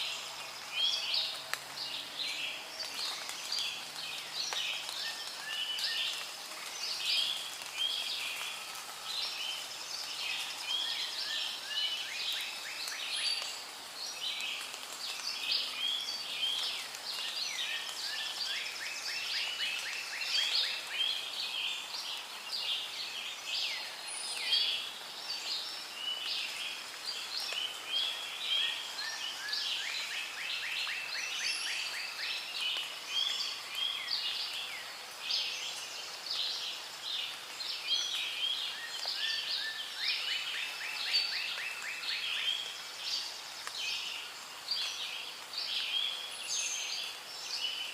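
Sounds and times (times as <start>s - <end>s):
faint hiss: 0.0s - 47.9s.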